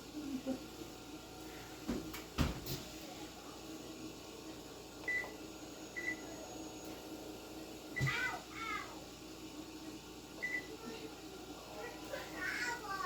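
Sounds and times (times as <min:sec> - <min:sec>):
oven control panel beeping: 0:05.0 - 0:05.4, 0:06.0 - 0:06.3.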